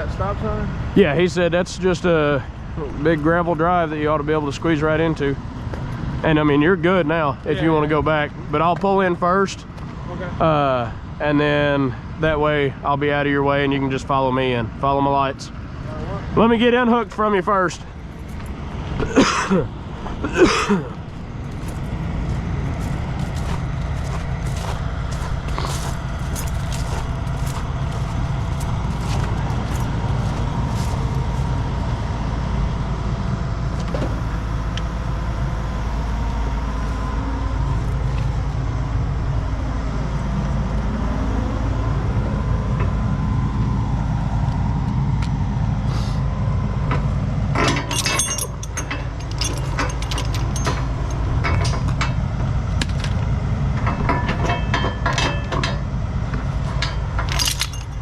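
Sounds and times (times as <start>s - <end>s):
truck diesel engine running: 0.0s - 58.0s
chains rattling and clinking: 23.3s - 31.2s, 47.6s - 52.2s, 56.7s - 58.0s.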